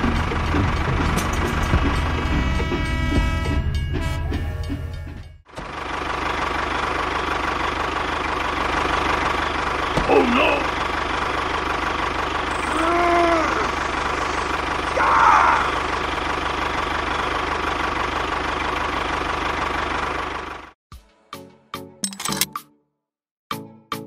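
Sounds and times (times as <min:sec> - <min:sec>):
small tractor motor whining: 0:10.7 - 0:17.3
short voice-like cries: 0:12.5 - 0:15.9.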